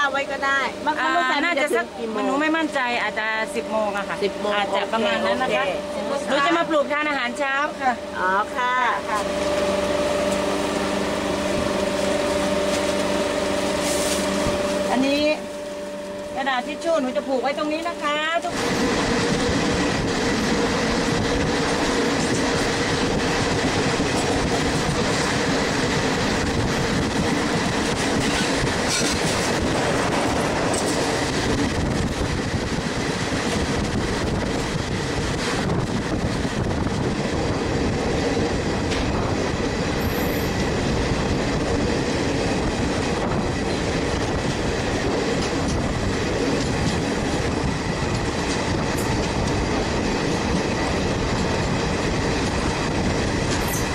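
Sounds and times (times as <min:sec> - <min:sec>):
wheels rumbling on rails: 0:00.0 - 0:53.9
clacks over rail joints: 0:21.4 - 0:31.7.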